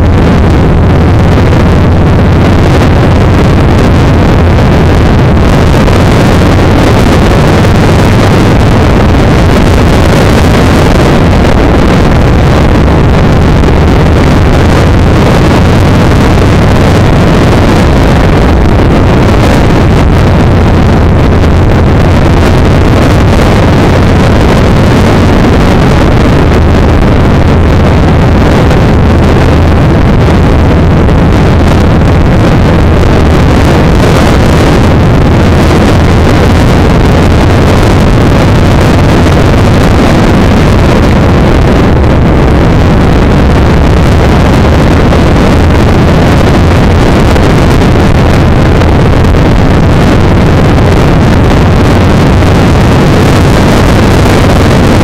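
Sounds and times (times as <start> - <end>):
motorcycle engine running: 0.0 - 40.8
wind rushing over microphone: 0.0 - 55.0.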